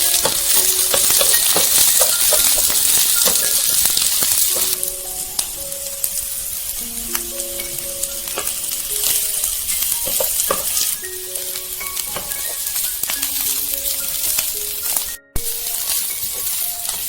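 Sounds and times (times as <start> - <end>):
spoon clicking against pan: 0.0 - 4.8
background music: 0.0 - 17.0
food sizzling in a pan: 0.0 - 17.0.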